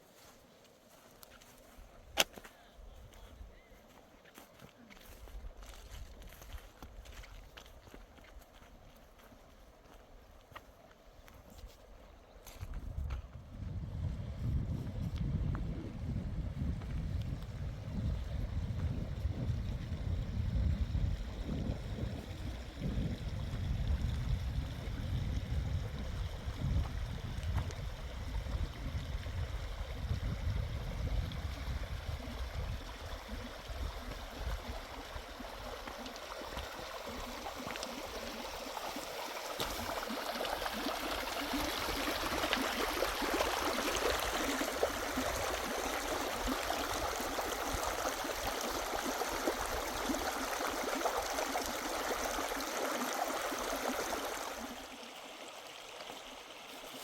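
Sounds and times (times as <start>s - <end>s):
wind buffeting microphone: 12.5s - 38.4s
stream rushing: 33.0s - 57.0s.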